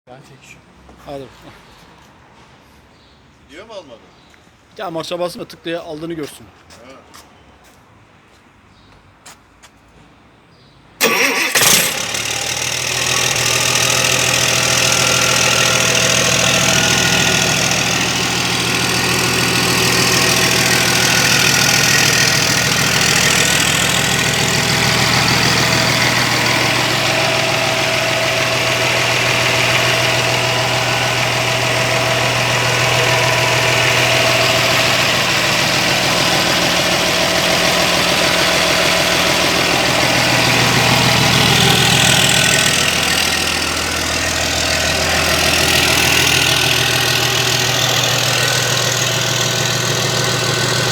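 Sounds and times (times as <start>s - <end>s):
diesel engine starting and idling: 11.0s - 50.9s.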